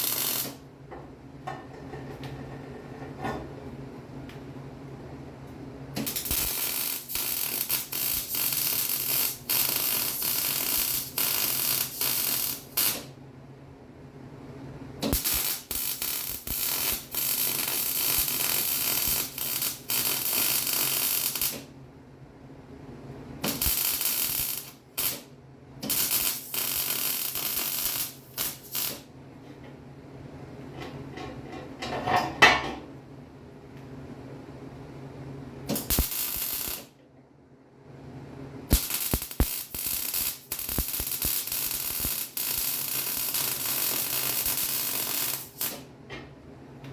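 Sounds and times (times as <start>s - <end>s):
crackling welding arc: 0.0s - 0.6s, 6.0s - 13.1s, 15.0s - 21.7s, 23.4s - 29.0s, 35.7s - 36.9s, 38.7s - 45.8s.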